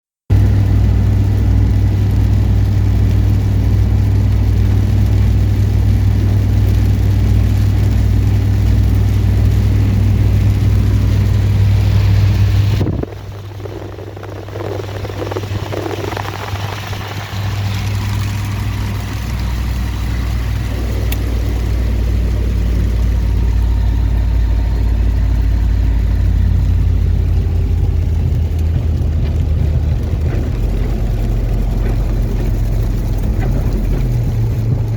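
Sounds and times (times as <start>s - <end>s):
wind buffeting microphone: 0.4s - 34.9s.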